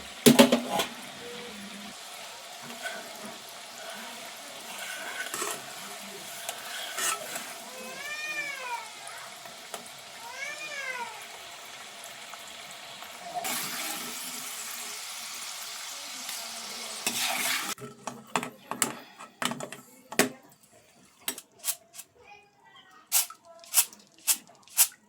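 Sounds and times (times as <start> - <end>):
oil sizzling in a frying pan: 0.0 - 17.8, 23.0 - 25.0.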